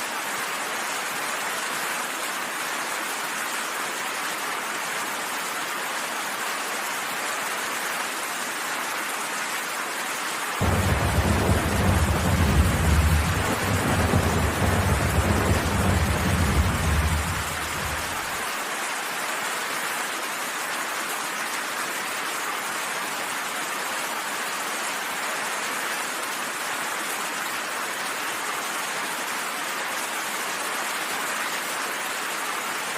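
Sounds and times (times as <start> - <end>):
steady rain falling: 0.0 - 32.9
thunder rolling: 10.6 - 18.4.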